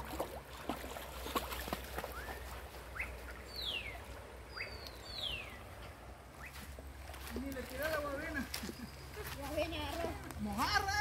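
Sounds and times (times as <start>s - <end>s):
rising bird chirps: 2.1s - 5.8s.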